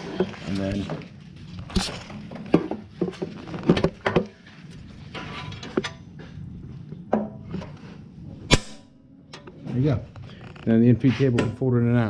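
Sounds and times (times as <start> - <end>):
light scraping: 9.5 - 11.8.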